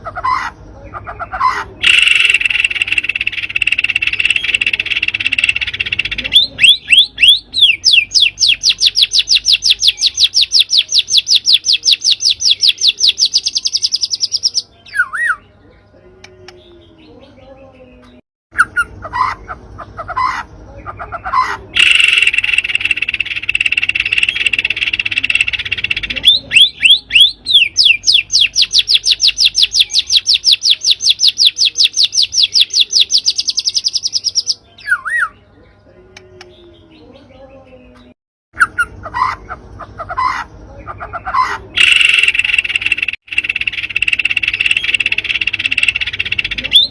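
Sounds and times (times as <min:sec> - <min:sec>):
recorded bird song trill: 0:00.0 - 0:46.9.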